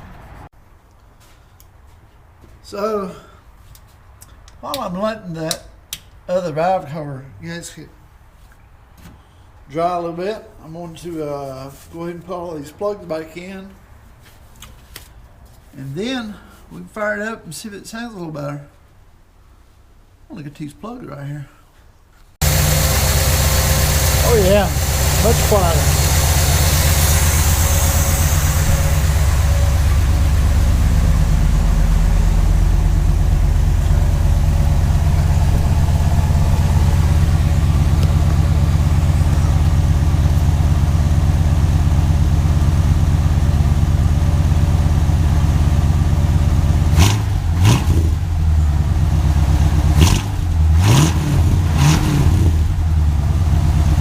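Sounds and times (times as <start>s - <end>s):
car engine idling: 22.4s - 54.0s.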